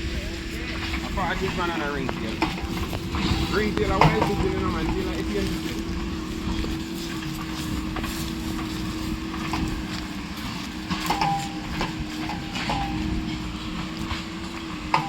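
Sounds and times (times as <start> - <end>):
engine humming: 0.0 - 15.0
sharp knocks and clinks: 10.9 - 14.3.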